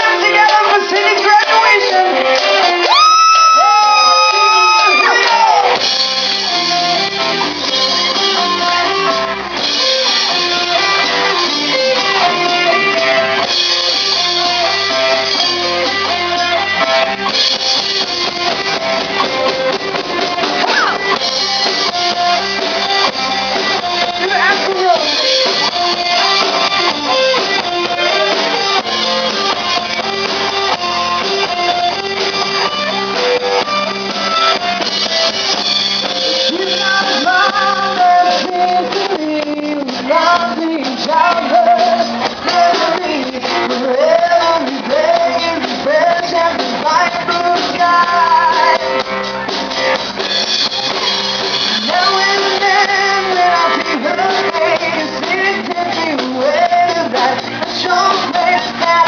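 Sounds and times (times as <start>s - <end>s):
person singing: 0.0s - 5.9s, 18.0s - 32.0s, 36.2s - 49.9s, 51.5s - 59.0s
drums: 0.0s - 59.0s
electric guitar: 0.0s - 59.0s.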